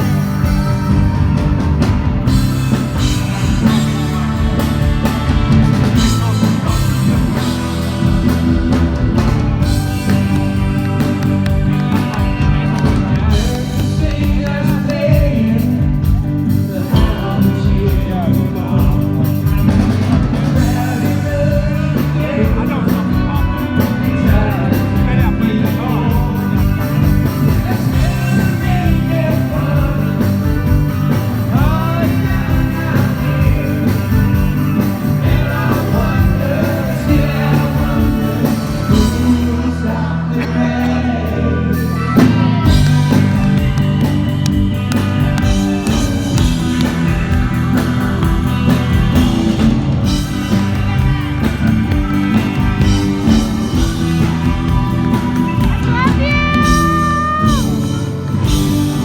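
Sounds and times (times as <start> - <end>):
live rock band playing: 0.0 - 59.0
man singing: 2.7 - 8.2, 11.9 - 43.8, 55.8 - 57.9.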